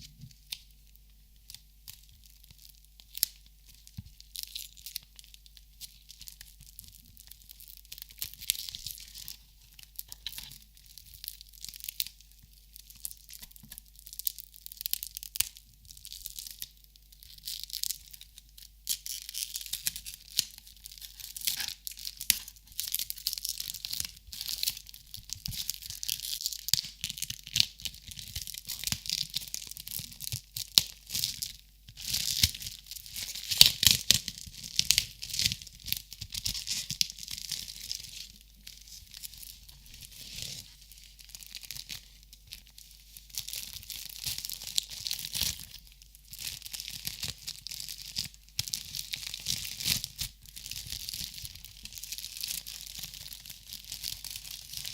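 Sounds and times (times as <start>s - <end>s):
crinkly material crackling: 0.0s - 54.9s.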